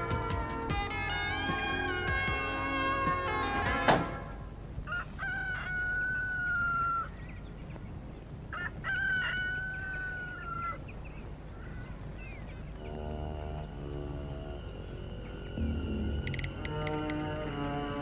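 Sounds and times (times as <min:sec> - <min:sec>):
rooster crowing: 0:04.8 - 0:07.2, 0:08.5 - 0:10.8.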